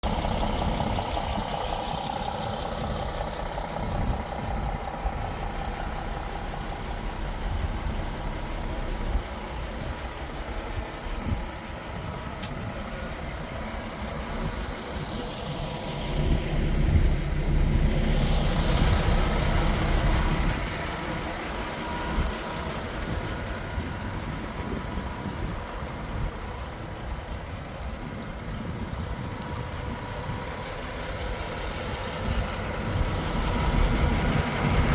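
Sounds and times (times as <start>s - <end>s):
truck diesel engine idling: 0.0s - 34.9s
sharp click: 12.4s - 12.7s.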